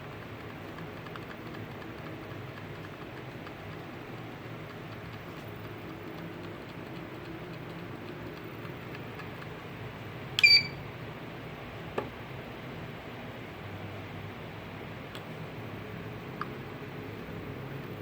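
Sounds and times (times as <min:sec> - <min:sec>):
short electronic beep: 0:10.4 - 0:10.8.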